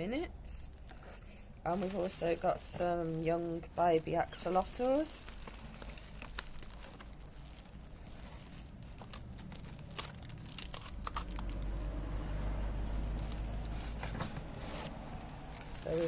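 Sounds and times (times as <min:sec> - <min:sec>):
plastic packaging crinkling: 0:00.9 - 0:12.4, 0:13.1 - 0:16.0
small crackles and clicks: 0:01.8 - 0:12.3.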